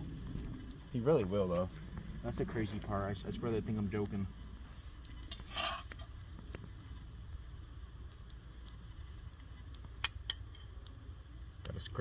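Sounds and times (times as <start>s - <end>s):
low rumble: 0.0s - 9.5s
fire clicks and pops: 0.0s - 12.0s.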